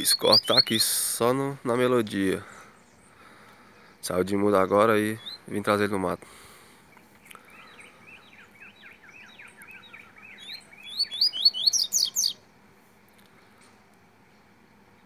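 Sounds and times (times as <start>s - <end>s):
bird singing quick whistles: 0.0s - 0.7s, 9.2s - 12.4s.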